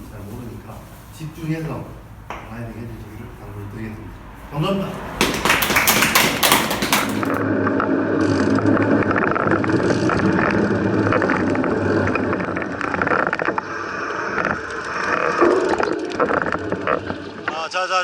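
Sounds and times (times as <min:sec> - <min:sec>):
group applause: 0:04.8 - 0:07.4.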